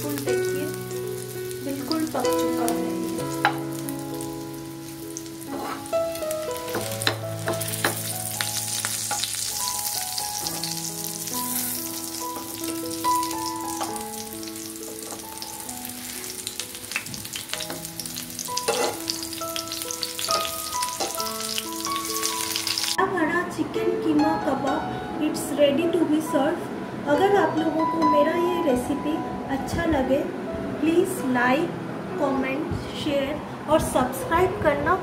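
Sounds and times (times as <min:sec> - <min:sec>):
food sizzling in oil: 0:00.0 - 0:23.0
soft melody of held notes: 0:00.0 - 0:31.6.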